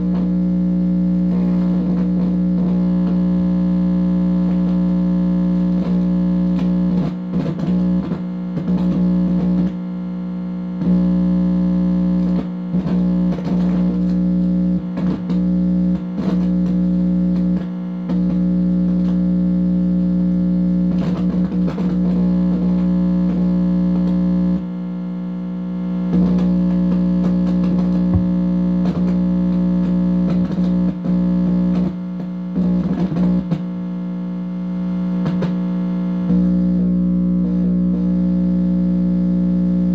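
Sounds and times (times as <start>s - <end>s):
electronic interference buzz: 0.0s - 39.9s.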